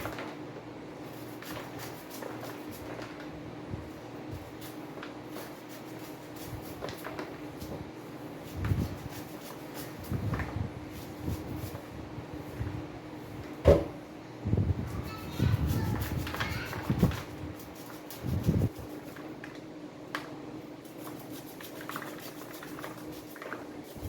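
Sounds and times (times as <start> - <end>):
knife scraping corn cob: 20.8 - 24.0.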